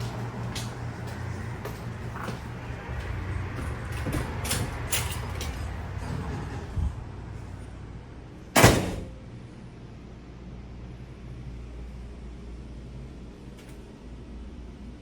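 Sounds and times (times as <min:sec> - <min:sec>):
loud thump: 0:08.6 - 0:09.2.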